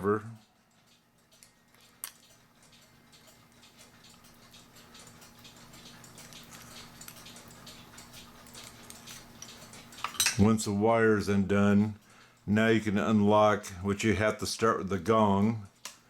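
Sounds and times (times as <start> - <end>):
faint steady hum: 0.0 - 16.0
small metallic clicks and scrapes: 0.6 - 10.4.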